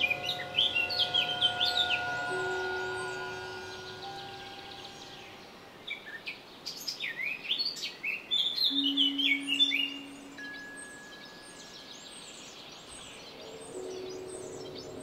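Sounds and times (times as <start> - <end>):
low steady hum: 0.0 - 5.8
metallic cymbal ringing: 0.0 - 5.9, 8.7 - 15.0
bird chirping: 0.0 - 15.0.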